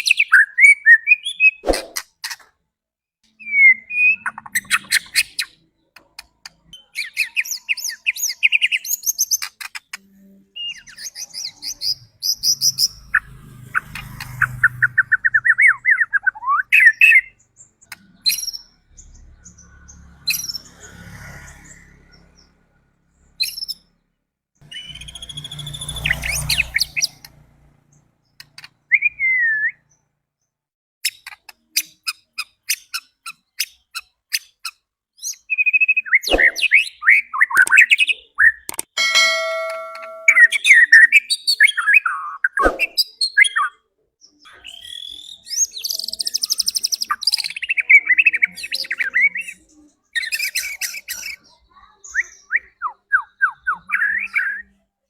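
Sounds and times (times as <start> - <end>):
bird singing whistles and warbles: 0.0 - 2.0, 3.4 - 5.6, 24.7 - 27.2, 28.9 - 29.9, 35.2 - 40.8, 44.5 - 54.7
sharp ticking bird notes: 24.6 - 27.4, 35.9 - 40.9
buzzy bird note: 39.0 - 40.8.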